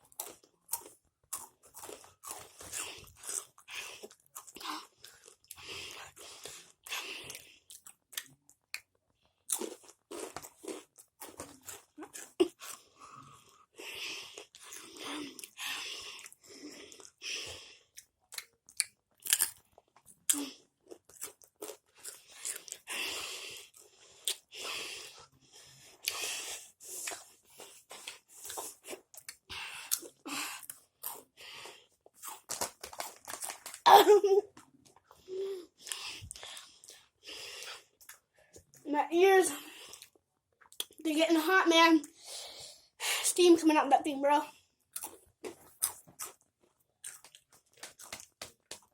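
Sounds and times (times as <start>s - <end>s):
crunching chips: 18.4s - 22.8s, 32.2s - 33.8s.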